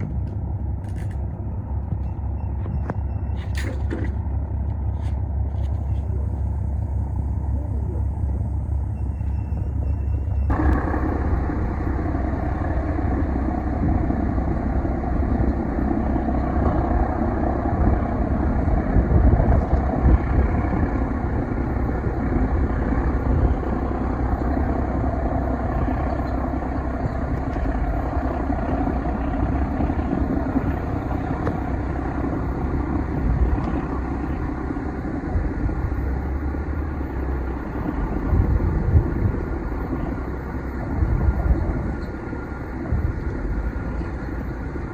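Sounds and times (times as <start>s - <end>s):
low engine rumble: 0.0s - 44.9s
mid-range noise: 0.0s - 44.9s.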